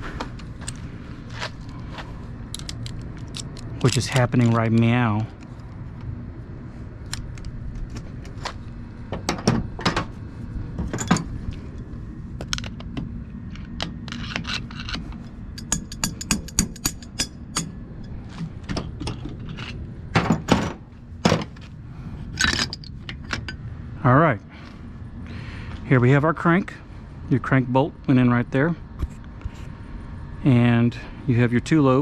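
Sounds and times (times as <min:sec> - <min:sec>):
metal parts knocking and scraping: 0:02.5 - 0:04.9, 0:10.8 - 0:11.4, 0:12.4 - 0:21.7, 0:22.3 - 0:23.6.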